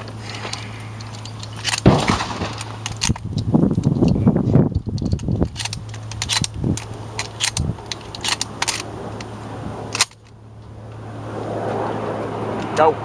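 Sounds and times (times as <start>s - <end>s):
steady low hum: 0.0s - 13.0s
sharp mechanical clicks: 0.5s - 9.3s.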